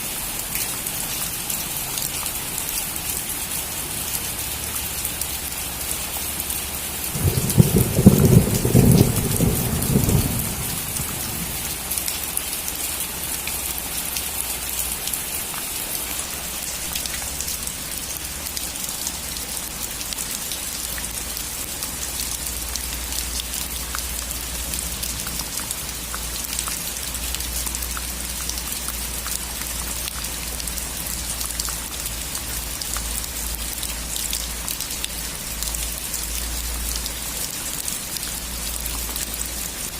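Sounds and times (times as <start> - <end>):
rain on a roof: 0.0 - 39.9
thunder clap rumbling: 7.2 - 11.9.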